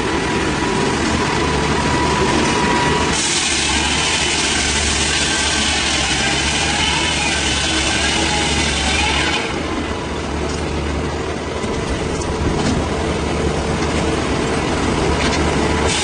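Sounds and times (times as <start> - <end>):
log saw engine running: 0.0 - 16.0
saw cutting hiss: 2.3 - 9.6.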